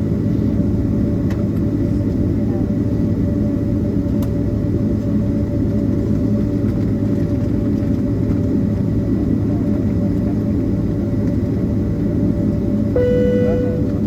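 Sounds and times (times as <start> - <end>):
jet engines rumbling: 0.0 - 14.0
steady whine: 12.2 - 14.0.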